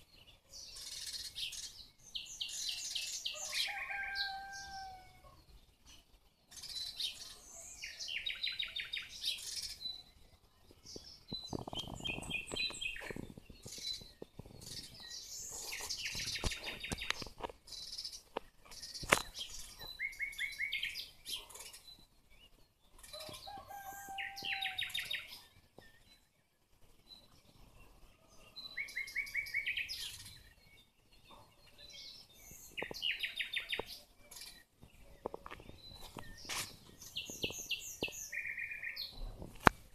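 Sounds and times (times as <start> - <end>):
songbirds trilling: 0.0 - 39.9
high bird chirps: 23.0 - 25.4.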